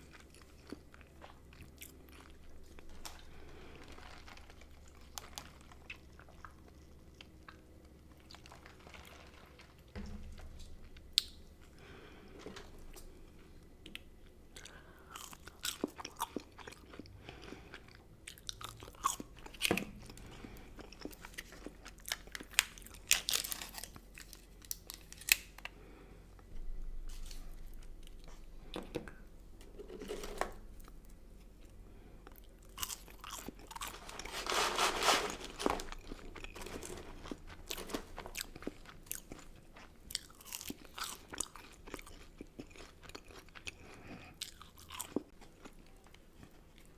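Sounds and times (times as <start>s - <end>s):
person crunching and chewing food: 0.0s - 46.9s.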